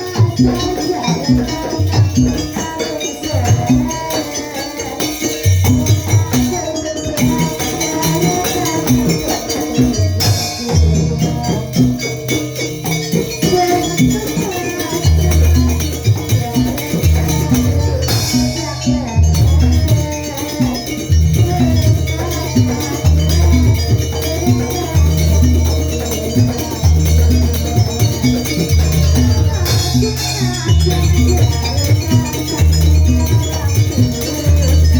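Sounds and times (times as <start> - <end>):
shaking jingling percussion: 0.0 - 34.9.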